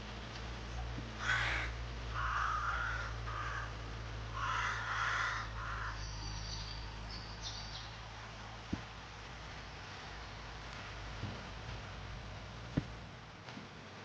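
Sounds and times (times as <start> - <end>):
steady low hum: 0.0 - 14.0
crow cawing: 1.2 - 6.1
small bird high chirps: 6.0 - 7.9.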